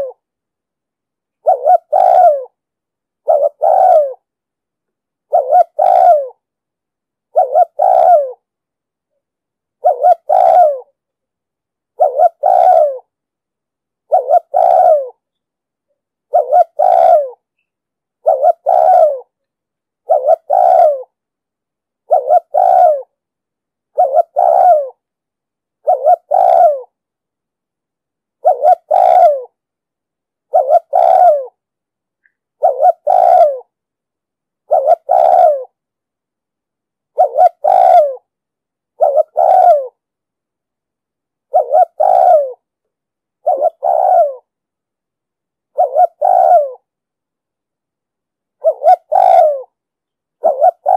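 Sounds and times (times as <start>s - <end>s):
dove cooing: 0.0s - 0.2s, 1.4s - 2.6s, 3.2s - 4.3s, 5.3s - 6.4s, 7.3s - 8.5s, 9.8s - 11.0s, 11.9s - 13.2s, 14.0s - 15.2s, 16.3s - 17.5s, 18.2s - 19.4s, 20.0s - 21.2s, 22.0s - 23.2s, 23.9s - 25.0s, 25.8s - 27.0s, 28.4s - 29.6s, 30.5s - 31.6s, 32.6s - 33.8s, 34.6s - 35.8s, 37.1s - 38.3s, 38.9s - 40.0s, 41.4s - 42.7s, 43.4s - 44.5s, 45.7s - 46.9s, 48.6s - 49.8s, 50.4s - 50.9s.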